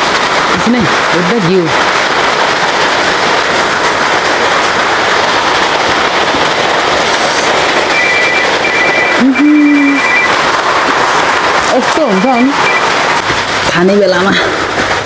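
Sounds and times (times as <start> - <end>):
heavy rain pouring: 0.0 - 15.0
high steady tone: 7.8 - 10.4.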